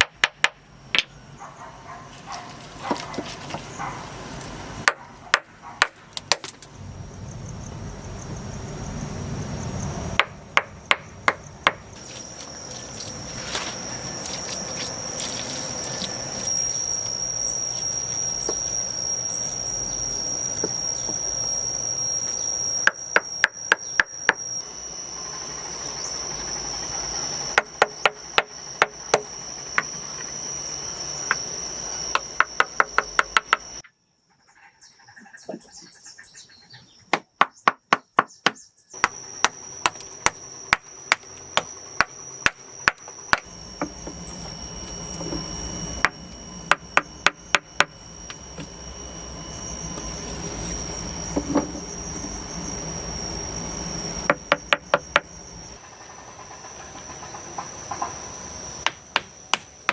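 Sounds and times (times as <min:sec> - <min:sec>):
high insect trill: 0:00.0 - 0:59.9
tool knocking on wood: 0:10.2 - 0:11.8, 0:54.3 - 0:55.3.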